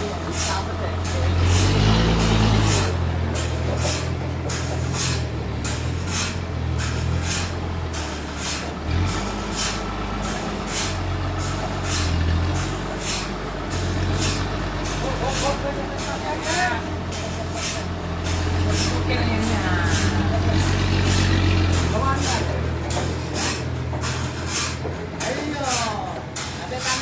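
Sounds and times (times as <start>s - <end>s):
sawmill engine drone: 0.0s - 27.0s.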